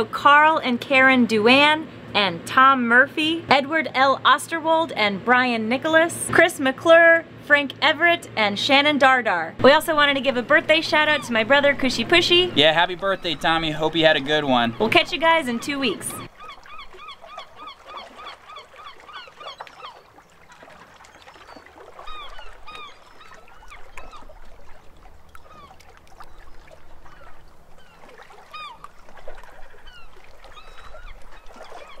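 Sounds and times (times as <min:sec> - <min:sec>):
birds calling with nasal notes: 0:09.6 - 0:20.2, 0:21.1 - 0:32.0.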